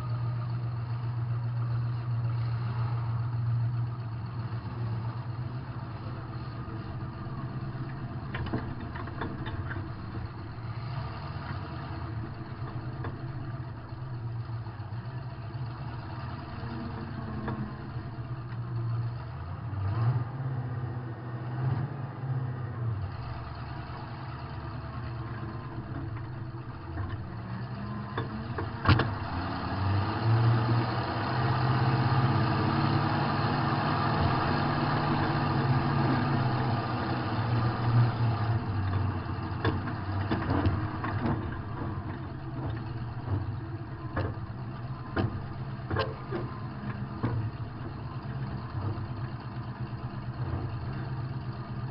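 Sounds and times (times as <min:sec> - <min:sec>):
car engine revving: 0:23.0 - 0:51.9.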